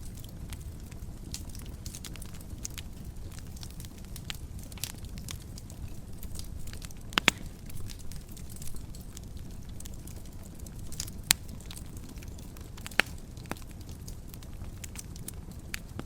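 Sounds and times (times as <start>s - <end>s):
wood fire crackling: 0.0s - 16.0s
sharp pop of fire: 7.1s - 8.1s, 12.8s - 13.2s.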